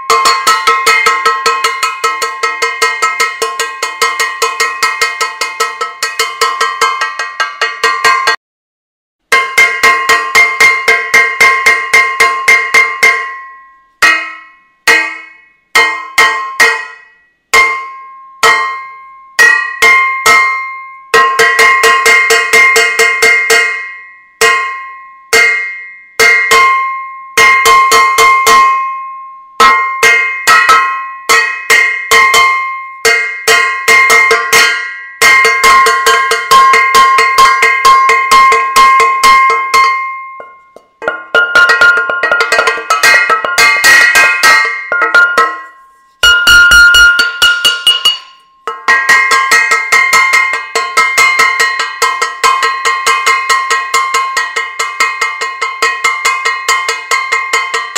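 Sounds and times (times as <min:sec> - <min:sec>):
metal saucepan clanging: 0:29.6 - 0:57.9.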